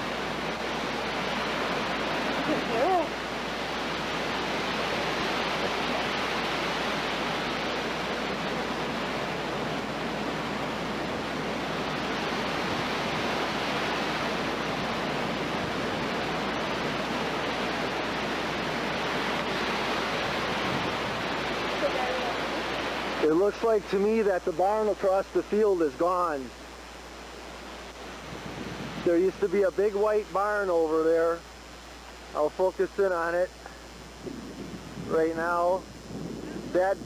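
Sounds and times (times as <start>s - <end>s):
tornado roaring: 0.0s - 23.9s.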